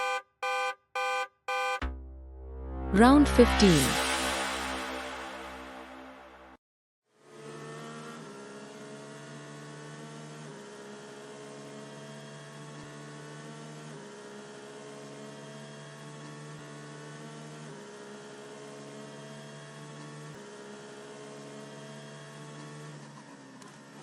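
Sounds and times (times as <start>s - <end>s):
electronic drone: 1.8s - 6.6s.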